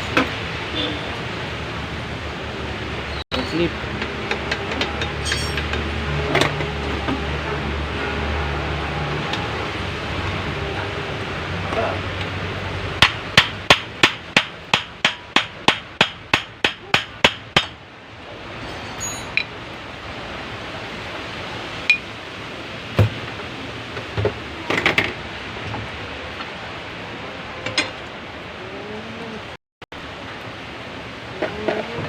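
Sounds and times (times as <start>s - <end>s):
hammer striking metal: 4.9s - 5.8s, 13.0s - 17.8s
metallic tool clinks: 18.6s - 19.5s.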